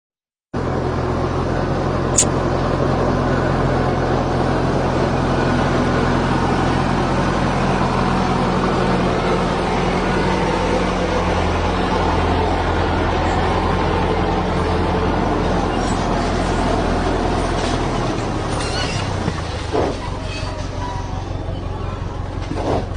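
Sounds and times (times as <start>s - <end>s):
road noise: 0.6s - 22.9s
vehicle engine humming: 0.6s - 22.9s
short high-pitched squeak: 2.2s - 2.4s, 18.5s - 19.2s, 19.9s - 22.0s.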